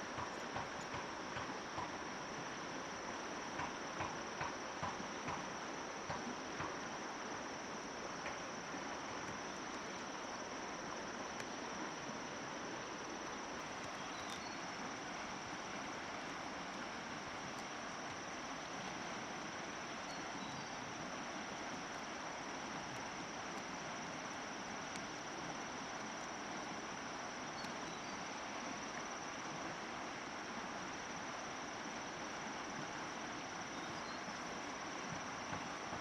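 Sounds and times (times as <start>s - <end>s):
faint chirps: 13.8s - 14.7s.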